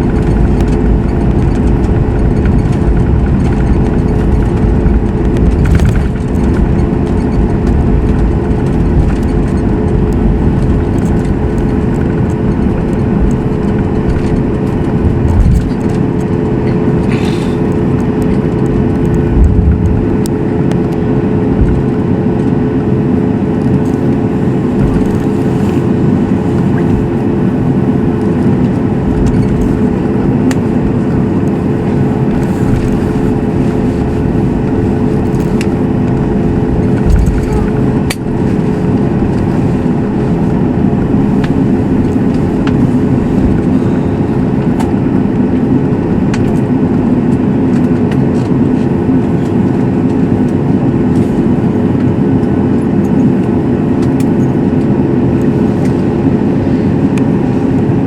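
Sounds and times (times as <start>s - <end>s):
aircraft engines humming in cabin: 0.0s - 58.0s
low thumps: 18.5s - 20.3s, 24.6s - 25.6s.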